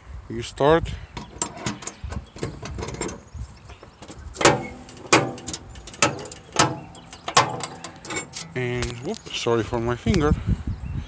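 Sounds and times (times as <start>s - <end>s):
hand winch metallic clacks: 1.2s - 9.4s.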